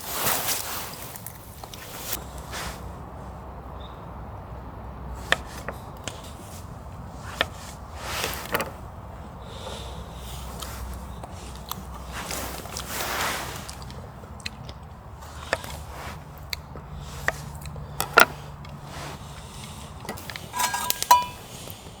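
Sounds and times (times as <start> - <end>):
soft rustling sweeps: 20.4 - 21.4
low steady hum: 20.5 - 21.4.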